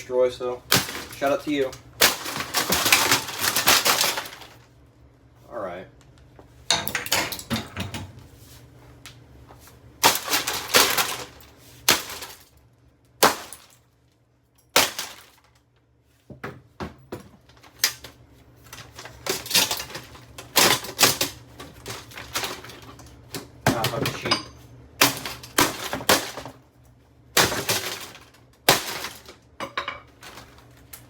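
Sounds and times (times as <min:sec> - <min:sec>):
plastic cracking and clattering: 0:00.6 - 0:04.7, 0:10.0 - 0:12.6, 0:14.8 - 0:15.6, 0:17.4 - 0:24.2, 0:25.0 - 0:26.6, 0:27.4 - 0:29.4, 0:30.1 - 0:31.0
plastic fan being smashed: 0:00.6 - 0:04.7, 0:06.7 - 0:08.1, 0:10.0 - 0:12.6, 0:13.2 - 0:13.8, 0:14.7 - 0:15.6, 0:17.4 - 0:24.4, 0:25.0 - 0:26.7, 0:27.3 - 0:31.0.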